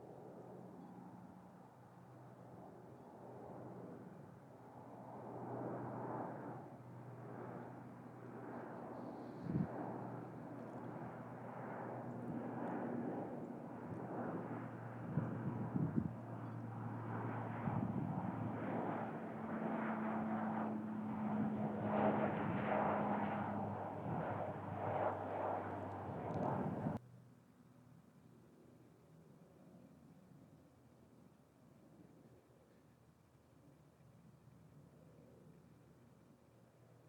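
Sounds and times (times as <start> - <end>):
airplane engine rushing: 5.3 - 27.0
low hum: 20.0 - 27.0.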